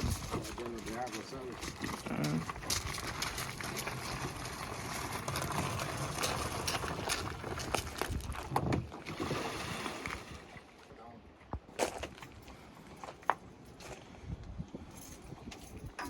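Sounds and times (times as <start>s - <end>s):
water splashing around boat: 0.0s - 10.9s
wind: 0.0s - 16.0s.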